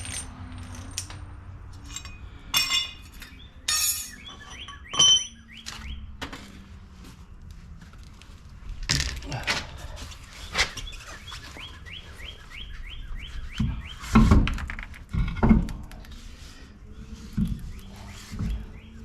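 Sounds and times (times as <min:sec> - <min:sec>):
bird singing: 0:03.2 - 0:06.2, 0:10.3 - 0:14.3, 0:16.9 - 0:19.0.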